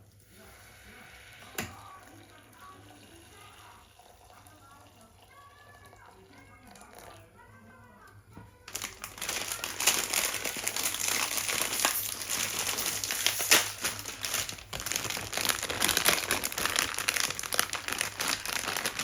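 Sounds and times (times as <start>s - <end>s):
crinkling and crumpling: 8.6s - 19.0s.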